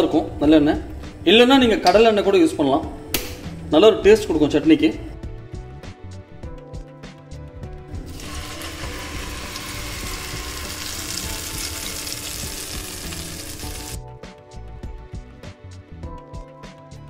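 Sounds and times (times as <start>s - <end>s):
chutney sizzling in hot oil: 8.0s - 14.0s.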